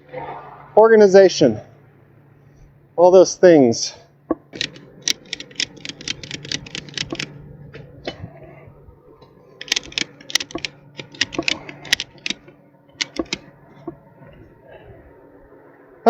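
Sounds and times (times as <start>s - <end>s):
faint low hum: 0.0s - 16.0s
hard objects clicking and clinking: 9.6s - 13.4s.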